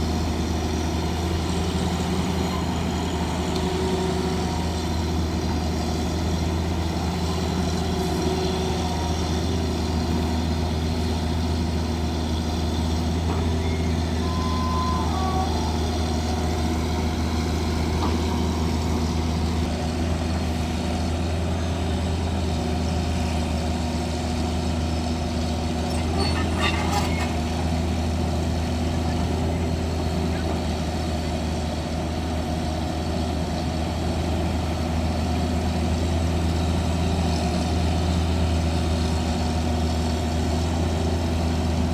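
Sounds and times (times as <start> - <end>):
heavy diesel engine running: 0.0 - 41.9
brief high tone: 13.6 - 16.6.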